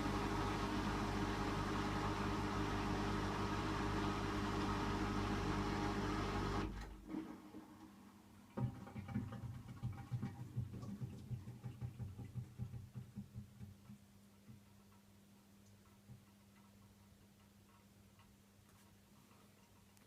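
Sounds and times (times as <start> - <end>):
washing machine spin hum and whine: 0.0 - 13.4.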